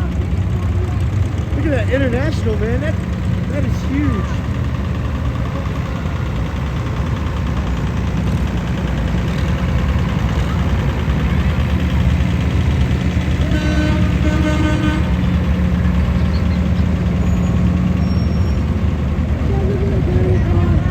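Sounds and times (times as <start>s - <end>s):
tractor engines rumbling: 0.0s - 20.9s
horn sounding: 13.3s - 15.8s.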